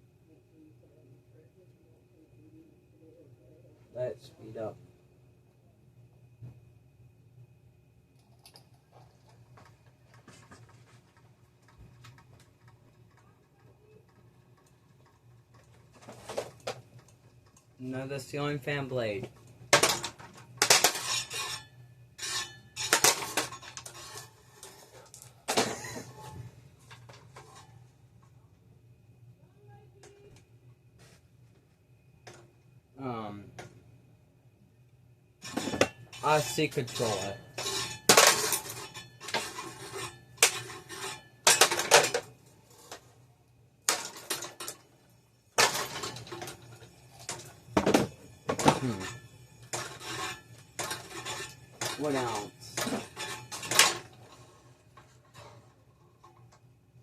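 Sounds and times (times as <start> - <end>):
faint low hum: 0.0 - 57.0
fan blades clattering against loose blade: 8.5 - 27.8, 35.4 - 43.0, 43.9 - 44.9, 45.6 - 56.6
fan blades hitting plastic: 19.2 - 21.6, 35.4 - 42.4, 43.9 - 44.8, 45.6 - 54.2.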